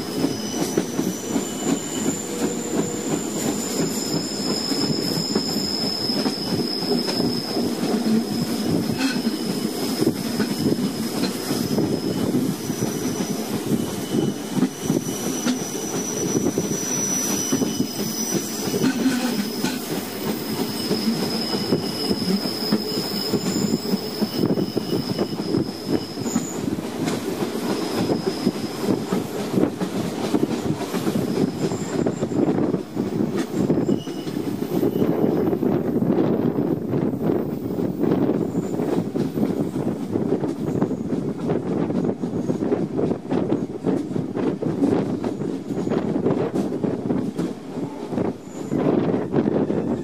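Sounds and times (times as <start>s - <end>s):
wheel squeal: 0.0s - 26.8s, 27.6s - 29.3s, 30.3s - 32.8s, 33.4s - 36.0s
train wheels rumbling and clattering: 0.0s - 50.0s.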